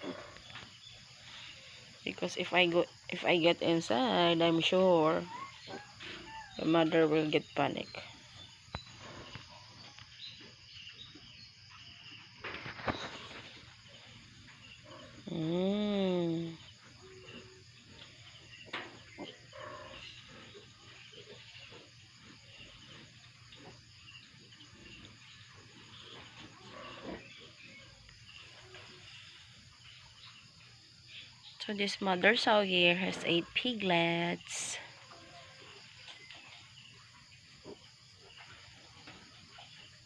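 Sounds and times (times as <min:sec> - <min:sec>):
pigs grunting: 0:00.0 - 0:00.5, 0:16.5 - 0:29.0.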